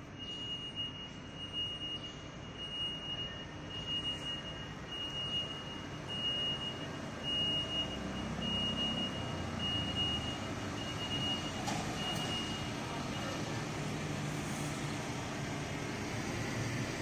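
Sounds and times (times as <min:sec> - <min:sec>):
excavator alarm beeps: 0:00.0 - 0:13.4
diesel engine running: 0:03.4 - 0:17.0.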